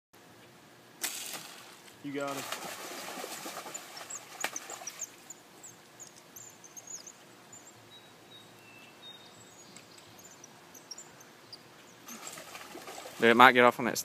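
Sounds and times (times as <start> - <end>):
low outdoor background noise: 0.2 - 14.0
high bird chirps: 3.7 - 12.2.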